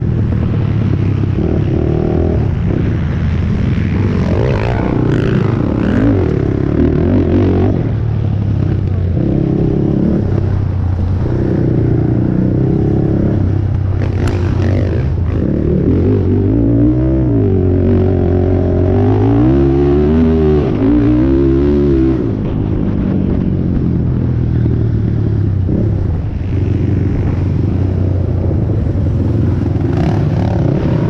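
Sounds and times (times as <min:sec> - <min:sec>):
quad engine revving: 0:11.2 - 0:22.3.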